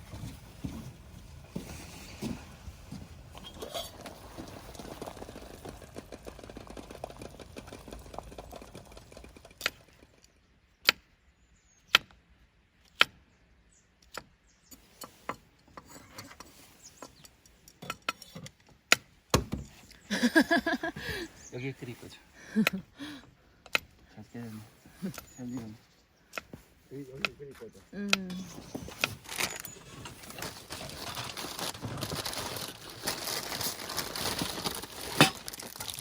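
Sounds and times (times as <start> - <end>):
scraping and rustling: 0.0 - 7.3, 28.4 - 36.0.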